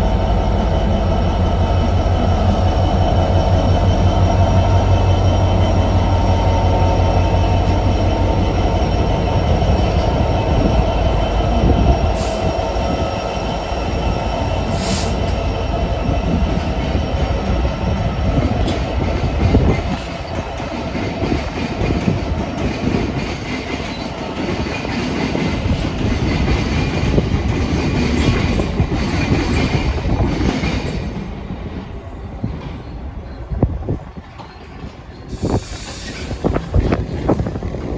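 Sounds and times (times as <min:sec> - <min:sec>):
train rumbling: 0:00.0 - 0:37.9.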